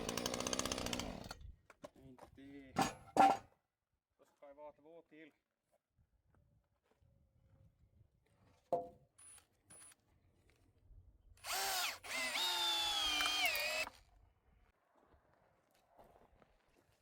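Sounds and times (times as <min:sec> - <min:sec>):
electric drill motor whining: 0:00.0 - 0:01.4, 0:11.4 - 0:13.9.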